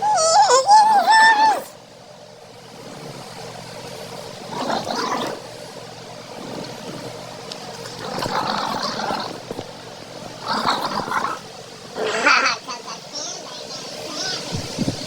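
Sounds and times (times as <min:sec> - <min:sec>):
small dog growling: 0:00.0 - 0:01.8, 0:02.7 - 0:03.6, 0:04.3 - 0:05.6, 0:06.3 - 0:13.1.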